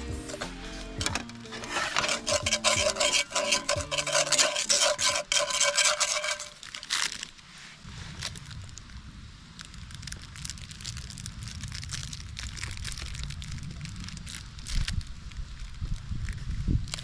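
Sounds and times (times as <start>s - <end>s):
faint background music: 0.0s - 4.5s
rhythmic rasping strokes: 0.0s - 6.8s.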